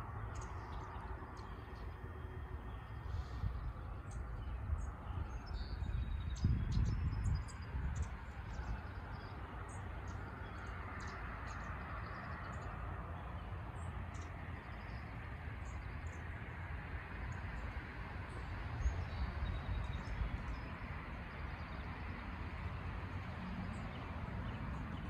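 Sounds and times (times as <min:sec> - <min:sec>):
songbirds chirping: 0:00.0 - 0:25.0.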